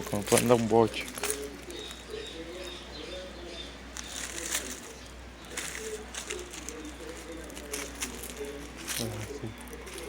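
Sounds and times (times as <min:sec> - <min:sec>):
dove-like cooing: 0:00.0 - 0:10.0.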